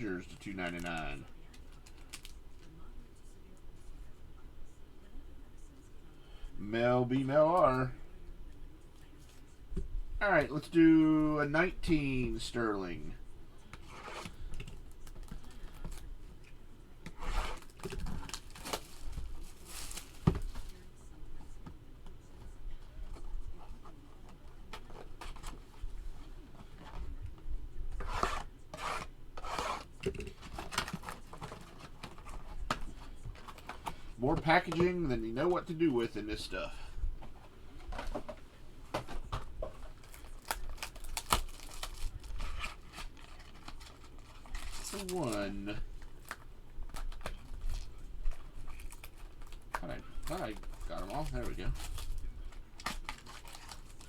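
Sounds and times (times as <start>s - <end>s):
packaging rustling: 17.2s - 20.8s, 28.0s - 34.9s, 37.4s - 54.0s
packaging being torn open: 40.0s - 45.4s.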